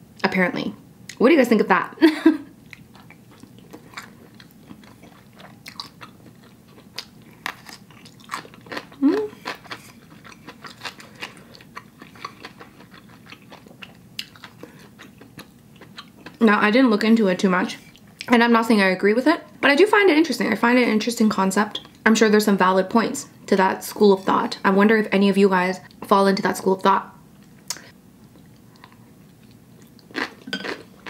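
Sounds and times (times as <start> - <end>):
chewing noodles: 2.7 - 16.4
person humming: 9.0 - 9.4.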